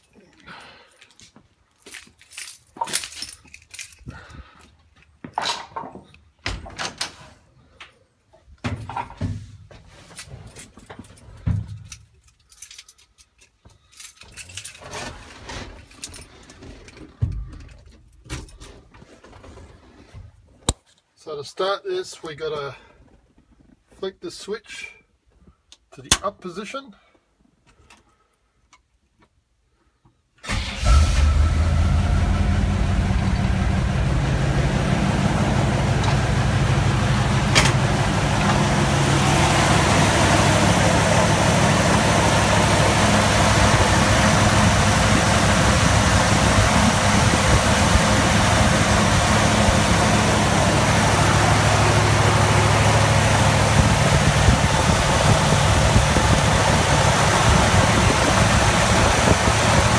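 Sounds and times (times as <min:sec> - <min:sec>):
truck engine starting and idling: 0:30.4 - 0:59.9.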